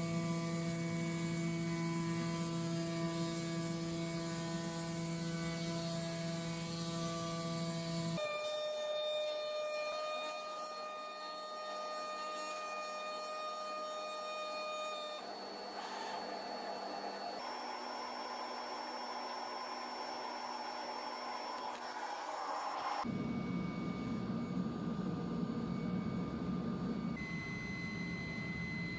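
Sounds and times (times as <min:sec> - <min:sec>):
cutting machine whine: 0:00.0 - 0:28.9.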